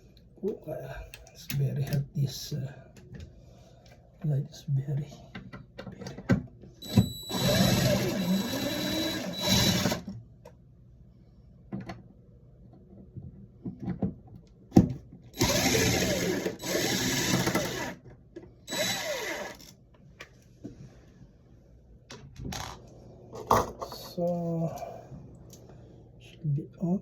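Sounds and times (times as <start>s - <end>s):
cordless drill whirring: 6.8s - 10.0s, 15.4s - 18.0s, 18.7s - 19.7s.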